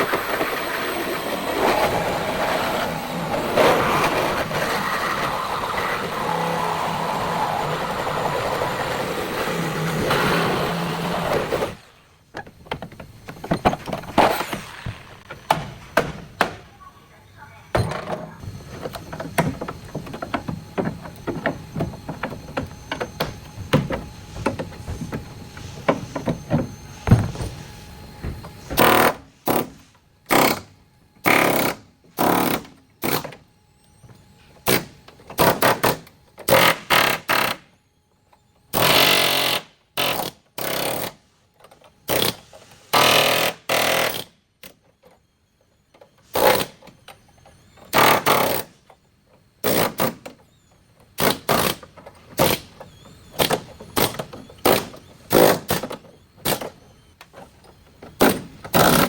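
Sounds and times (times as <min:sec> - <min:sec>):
power tool bursts: 0:28.7 - 0:29.7, 0:30.3 - 0:33.2, 0:34.7 - 0:37.7, 0:38.7 - 0:41.2, 0:42.1 - 0:44.4, 0:47.9 - 0:48.7, 0:51.2 - 0:56.7, 0:58.2 - 0:59.0.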